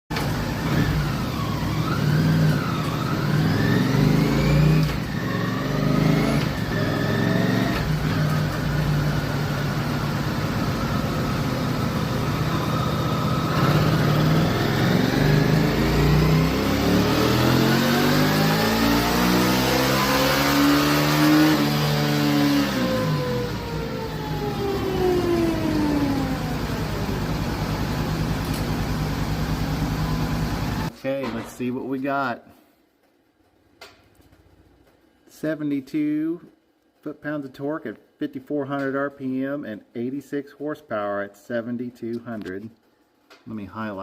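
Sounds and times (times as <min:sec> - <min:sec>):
motorcycle engine revving on dynamometer: 0:00.2 - 0:30.9.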